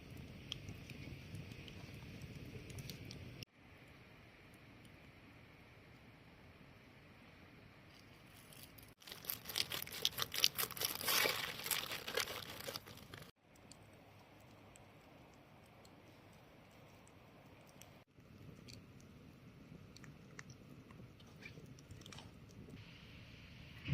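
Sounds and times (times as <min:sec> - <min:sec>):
crisp material crinkling and tearing: 0:08.3 - 0:13.3.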